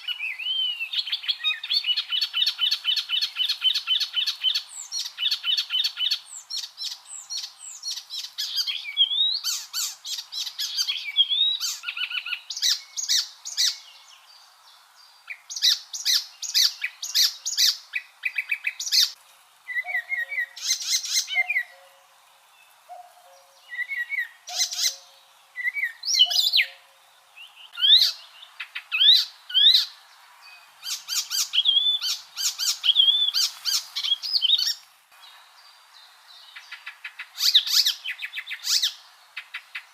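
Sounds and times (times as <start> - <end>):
warbler singing: 0.0 - 39.9.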